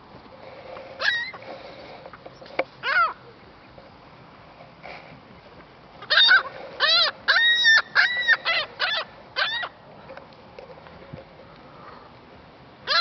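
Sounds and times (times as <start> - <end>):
gull giving harsh calls: 6.0 - 9.7.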